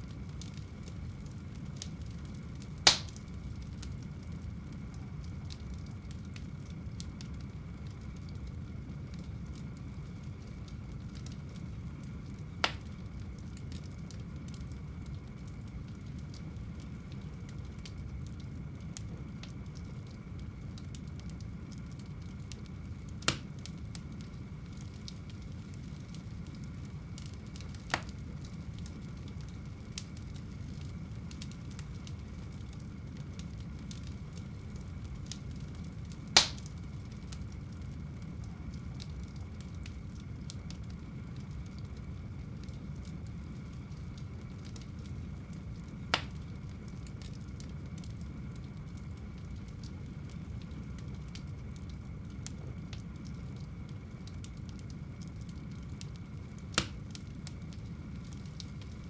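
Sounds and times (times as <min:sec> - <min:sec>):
fire crackling in fireplace: 0:00.0 - 0:59.0
sharp pops of fire: 0:01.7 - 0:04.0, 0:11.1 - 0:14.8, 0:22.0 - 0:37.5, 0:42.6 - 0:48.2, 0:54.4 - 0:59.0.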